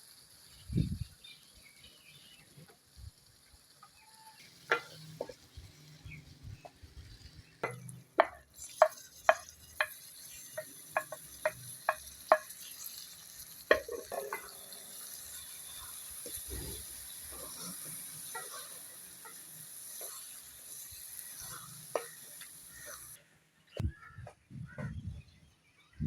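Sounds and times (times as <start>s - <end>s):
meat sizzling in a pan: 0.0s - 23.2s
spoon stirring and scraping pan: 7.6s - 23.2s.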